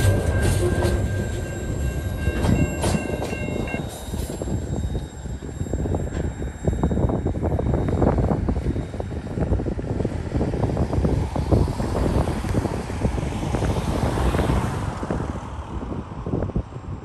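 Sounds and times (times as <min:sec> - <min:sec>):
freight wagons rumbling and clattering: 0:00.0 - 0:09.5.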